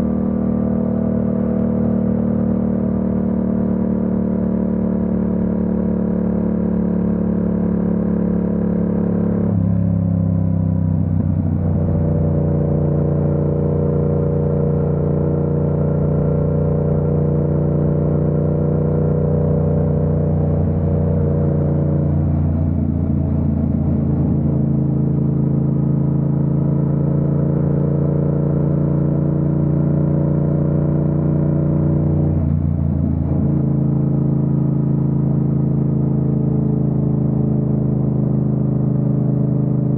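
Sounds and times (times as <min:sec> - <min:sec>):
motorcycle engine running: 0:10.7 - 0:39.9.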